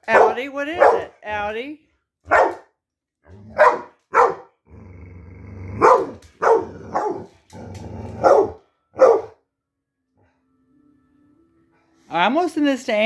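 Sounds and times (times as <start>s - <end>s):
dog barking: 0.0s - 1.2s, 2.3s - 2.7s, 3.5s - 4.6s, 5.8s - 7.3s, 8.2s - 9.4s
dog growling: 3.2s - 9.3s.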